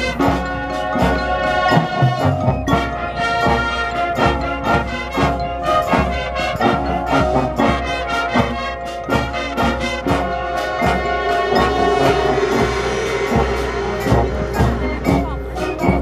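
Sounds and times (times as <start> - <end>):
brass section playing: 0.0 - 16.0
drums striking a steady beat: 0.0 - 16.0.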